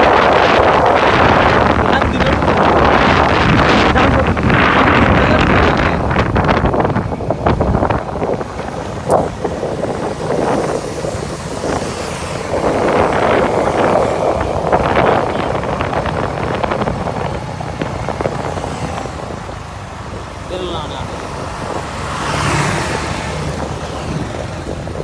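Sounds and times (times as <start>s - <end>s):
road and vehicle noise: 0.0s - 25.0s
wind buffeting microphone: 0.0s - 25.0s.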